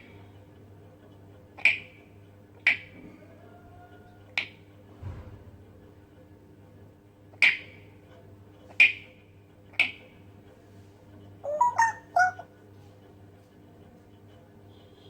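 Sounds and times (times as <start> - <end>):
parrot squeaky chirps: 11.4 - 12.5.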